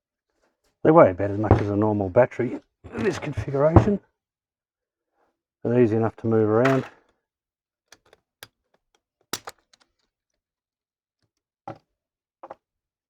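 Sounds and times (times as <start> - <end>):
clicks and knocks of hard objects: 6.6 - 7.2, 7.9 - 10.1.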